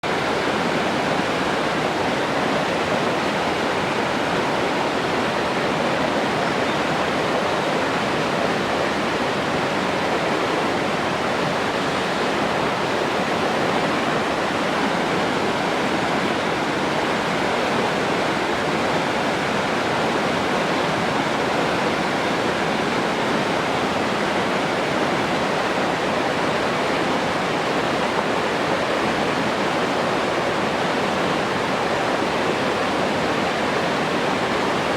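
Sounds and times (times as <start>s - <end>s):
water rushing: 0.0s - 34.9s.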